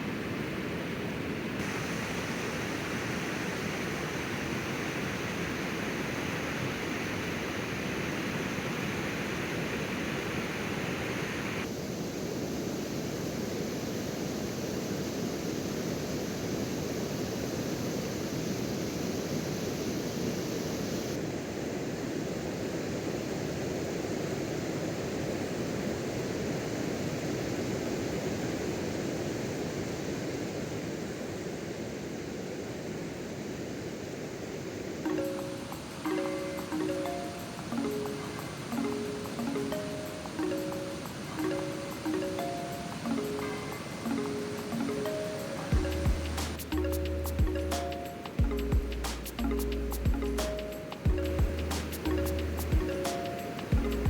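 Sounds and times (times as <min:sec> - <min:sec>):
flowing river water: 0:00.0 - 0:11.9, 0:32.7 - 0:54.0.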